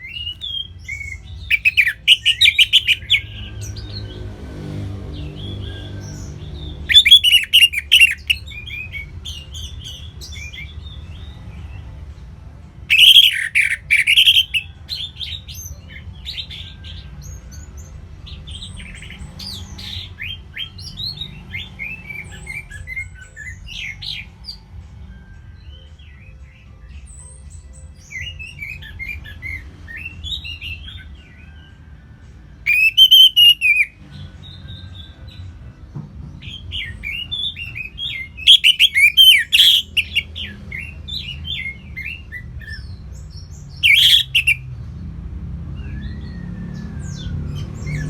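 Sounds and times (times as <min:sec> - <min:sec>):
recorded songbirds chirping: 0:00.0 - 0:48.0
bursts of rapid chirping: 0:00.4 - 0:03.4, 0:06.8 - 0:09.2, 0:12.9 - 0:14.6, 0:32.7 - 0:34.0, 0:38.4 - 0:40.4, 0:43.8 - 0:44.6.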